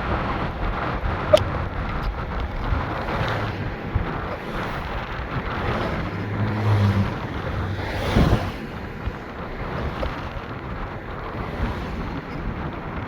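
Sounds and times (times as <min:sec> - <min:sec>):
car road and wind noise: 0:00.0 - 0:13.0
passing whoosh: 0:01.0 - 0:10.5.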